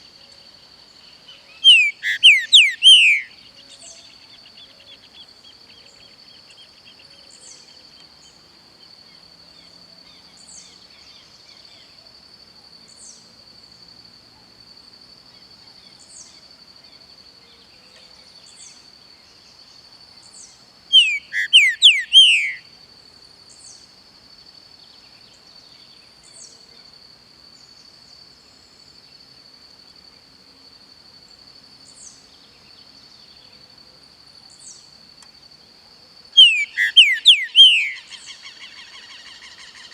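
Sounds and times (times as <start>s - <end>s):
bird singing whistled phrase: 1.7s - 3.3s, 21.0s - 22.6s, 36.4s - 38.1s
faint high chirps: 21.0s - 22.7s, 36.4s - 39.9s.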